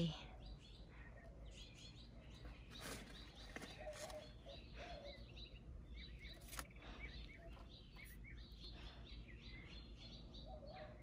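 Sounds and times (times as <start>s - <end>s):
small birds chirping: 0.0s - 11.0s
leaves rustling and clicking: 2.7s - 4.4s, 6.3s - 6.8s.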